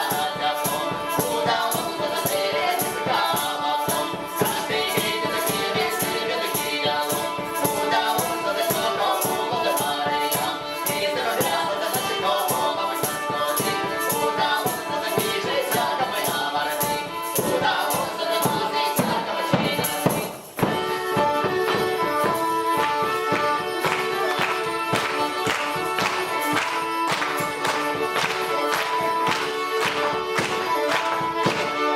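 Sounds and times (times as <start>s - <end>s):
folk ensemble instrumental tune: 0.0s - 31.9s
rattling percussion beat: 0.0s - 31.9s.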